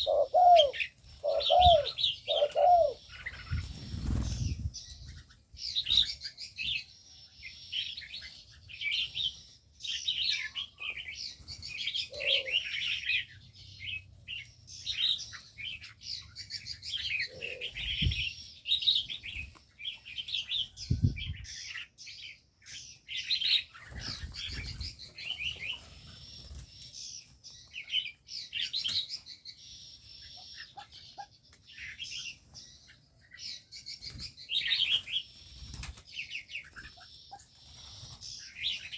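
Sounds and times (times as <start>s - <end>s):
small birds chirping: 0.0s - 38.9s
wings fluttering: 0.8s - 6.1s, 23.7s - 27.4s, 34.0s - 38.9s.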